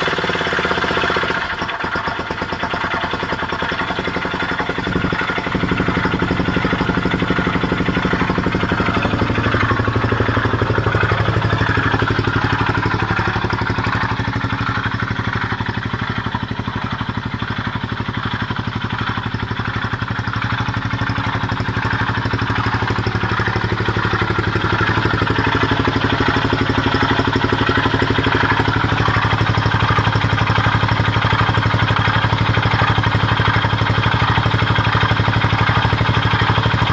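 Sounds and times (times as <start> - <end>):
motorcycle engine idling with grinding: 0.0 - 36.9.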